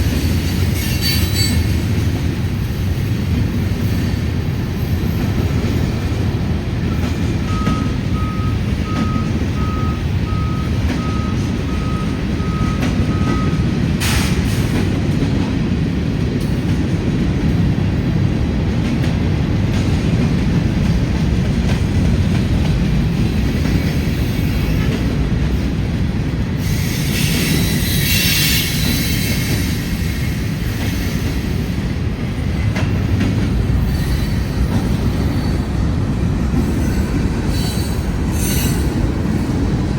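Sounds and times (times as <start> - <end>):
train wheels rumbling on rails: 0.0 - 39.9
wheel squeal: 0.7 - 1.9, 26.6 - 30.5, 33.8 - 35.6, 36.6 - 39.1
reversing alarm beeping: 6.9 - 13.8.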